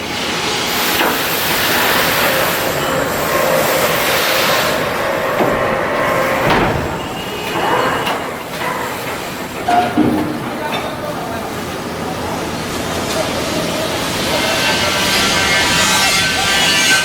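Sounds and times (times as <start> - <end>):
heavy machinery hissing: 0.0 - 10.0.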